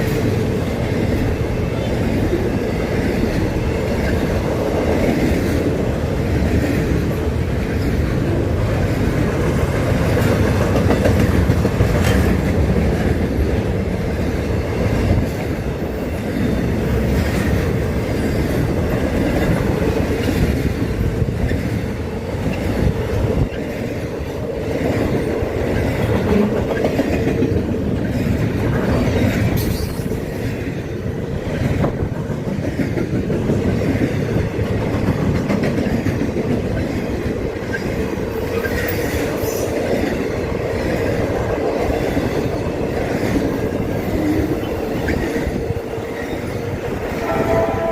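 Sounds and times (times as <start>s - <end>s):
wheels clacking over rail joints: 0.0s - 47.8s
freight train rumbling past: 0.0s - 47.9s.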